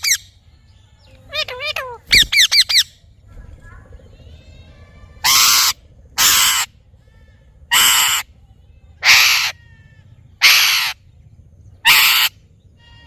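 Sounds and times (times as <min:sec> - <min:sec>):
parrot screeching squawks: 0:05.2 - 0:06.8, 0:07.7 - 0:08.3, 0:09.0 - 0:11.0, 0:11.8 - 0:13.0.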